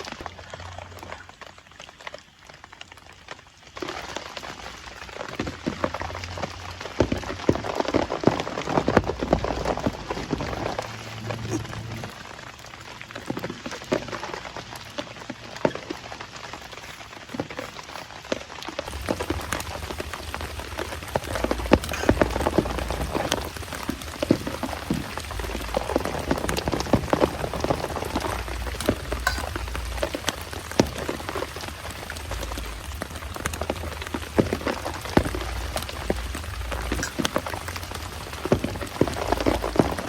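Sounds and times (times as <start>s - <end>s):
heavy rain falling: 3.4s - 18.0s, 18.8s - 40.0s
low rumble: 9.1s - 13.1s.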